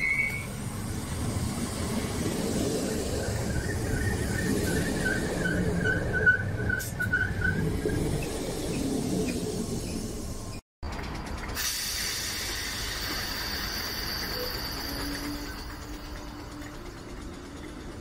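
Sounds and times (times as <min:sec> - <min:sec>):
pulsing wheel squeal: 0:00.0 - 0:00.6, 0:03.1 - 0:08.4, 0:13.4 - 0:18.0
electric train rumbling on rails: 0:00.0 - 0:18.0.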